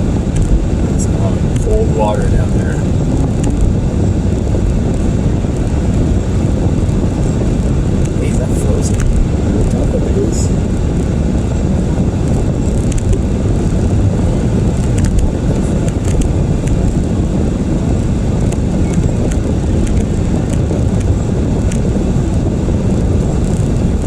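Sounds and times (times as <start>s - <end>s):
vehicle cabin road noise: 0.0s - 24.0s.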